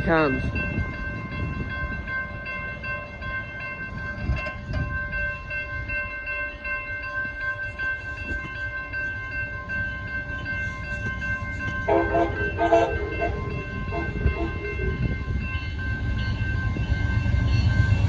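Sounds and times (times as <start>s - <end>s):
high ringing tone: 0.0s - 18.0s
passenger train rumbling past: 0.0s - 18.0s.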